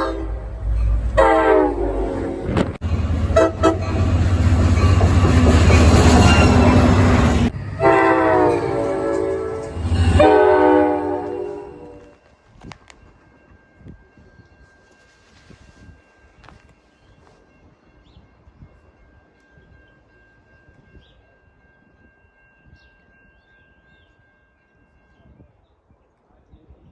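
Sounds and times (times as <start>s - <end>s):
train horn blasts: 0.0s - 4.3s, 6.1s - 12.2s
train rumbling: 0.0s - 23.3s.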